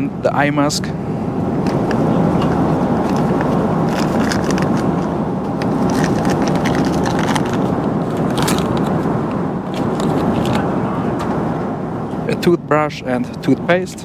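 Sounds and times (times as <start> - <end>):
airplane cabin drone: 0.0 - 14.0
packaging crinkling and rustling: 1.7 - 9.0, 9.8 - 10.6.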